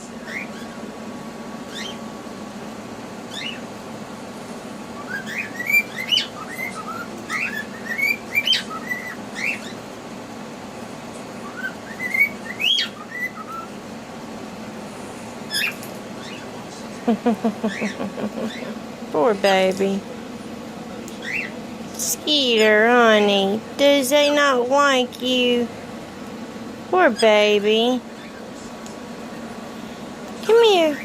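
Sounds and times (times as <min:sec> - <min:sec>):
steady low hum: 0:00.0 - 0:31.0
cockatiels whistling and chirping: 0:03.3 - 0:03.6, 0:05.0 - 0:09.8, 0:11.4 - 0:13.7, 0:21.2 - 0:21.5.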